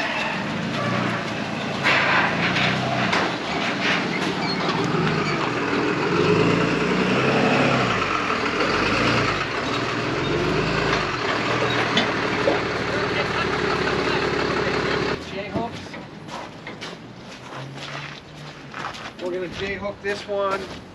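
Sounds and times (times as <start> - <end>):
knocks and clanks: 0.0 - 6.8, 7.9 - 17.1
vehicle engine revving: 0.0 - 15.2.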